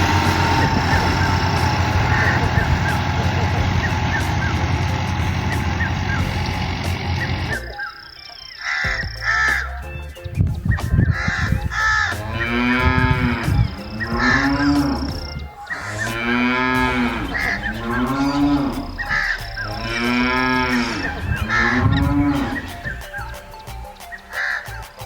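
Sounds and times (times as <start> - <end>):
cows mooing: 0.0 - 7.6, 11.2 - 23.4
short cawing calls: 8.6 - 9.7, 11.1 - 12.2, 14.2 - 14.5, 18.7 - 19.6, 20.8 - 22.8, 24.3 - 24.8.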